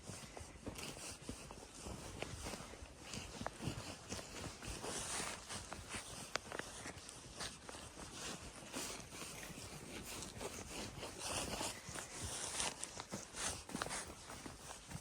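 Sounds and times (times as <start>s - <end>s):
horse hooves crunching snow: 0.0s - 15.0s.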